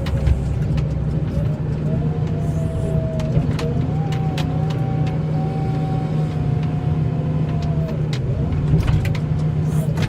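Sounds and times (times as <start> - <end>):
vehicle engine running: 0.0 - 10.0
wavering whine: 1.3 - 9.0.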